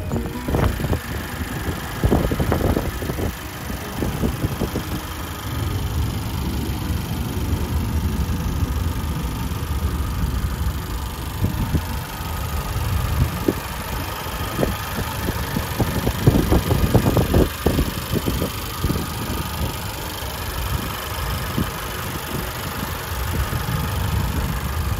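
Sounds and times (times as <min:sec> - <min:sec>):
low rumbles: 0:00.0 - 0:20.0
car engine idling: 0:00.0 - 0:24.9.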